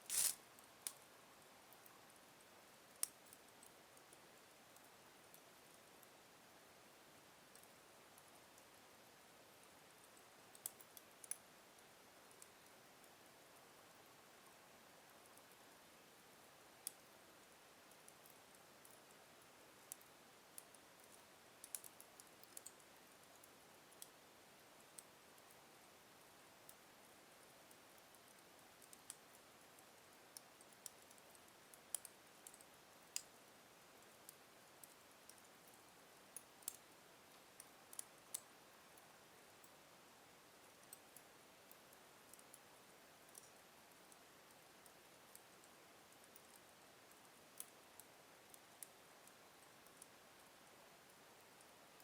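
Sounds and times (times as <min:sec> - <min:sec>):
wood fire crackling: 0:00.0 - 0:01.0
faint hiss: 0:00.0 - 0:52.0.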